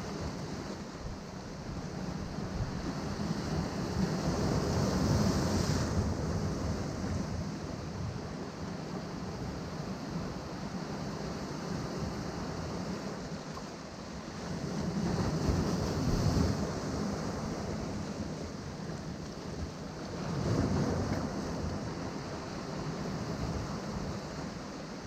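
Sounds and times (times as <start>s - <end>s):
waves breaking: 11.6s - 25.0s.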